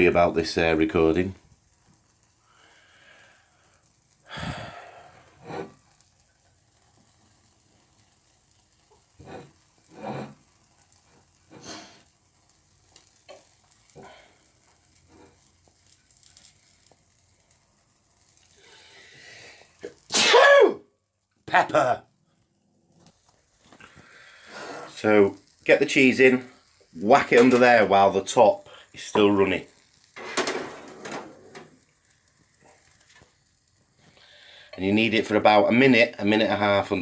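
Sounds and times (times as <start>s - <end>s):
omelette sizzling in a frying pan: 0.0s - 37.0s
person drawing in breath: 2.5s - 5.4s
breath or handling sounds: 11.5s - 12.1s, 18.4s - 19.9s, 22.9s - 25.6s, 31.4s - 34.8s
person sneezing: 20.1s - 20.8s.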